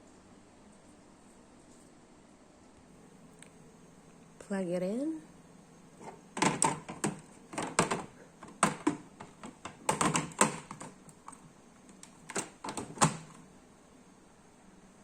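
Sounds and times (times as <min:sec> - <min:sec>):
clicks taps and knocks: 0:06.0 - 0:13.4.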